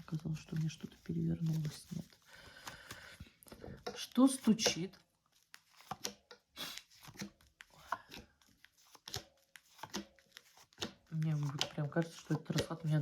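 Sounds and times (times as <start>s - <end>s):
cards snapping and sliding: 5.4s - 12.7s.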